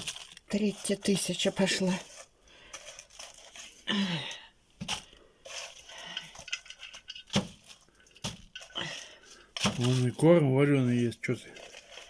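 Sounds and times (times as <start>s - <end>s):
dishes and utensils clinking: 6.0s - 10.0s.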